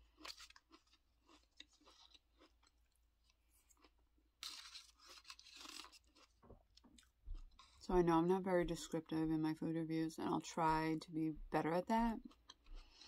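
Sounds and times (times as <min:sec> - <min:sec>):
crunching and chewing cereal: 0:00.0 - 0:07.9, 0:12.0 - 0:13.0.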